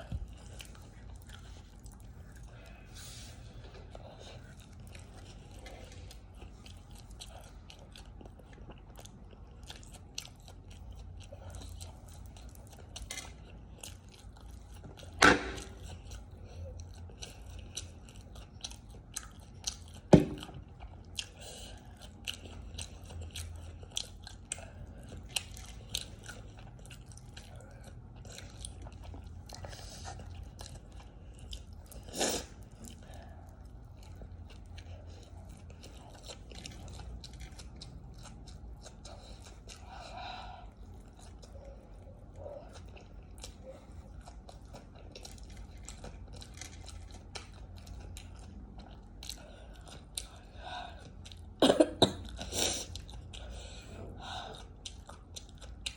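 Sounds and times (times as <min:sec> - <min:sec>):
person chewing and biting: 0:00.0 - 0:51.6, 0:52.2 - 0:55.9.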